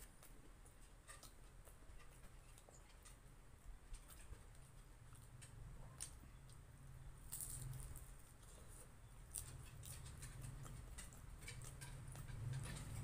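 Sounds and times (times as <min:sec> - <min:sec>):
person chewing crispy food: 0:03.9 - 0:13.0.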